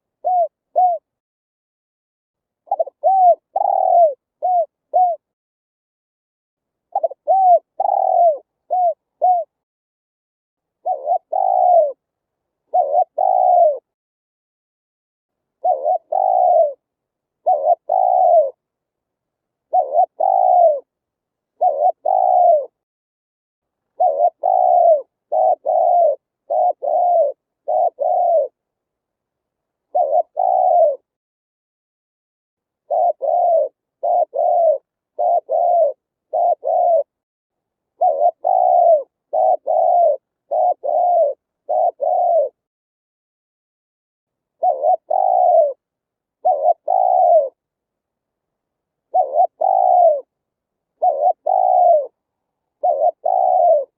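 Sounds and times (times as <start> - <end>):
dove cooing: 0.0 - 1.1, 2.7 - 5.3, 6.9 - 9.6, 10.8 - 12.0, 12.7 - 14.0, 15.6 - 16.8, 17.4 - 18.6, 19.7 - 20.9, 21.5 - 22.8, 23.9 - 28.6, 29.9 - 31.1, 32.8 - 37.2, 37.9 - 42.7, 44.6 - 47.6, 49.1 - 50.3, 50.9 - 53.9.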